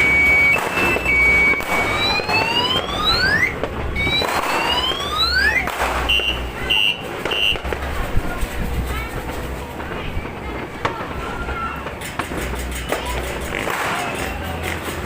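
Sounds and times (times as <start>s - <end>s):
car alarm siren: 0.0s - 7.6s.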